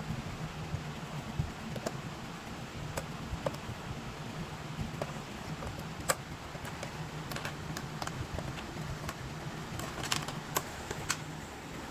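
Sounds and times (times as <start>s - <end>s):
plastic toy parts clicking: 9.8s - 11.2s.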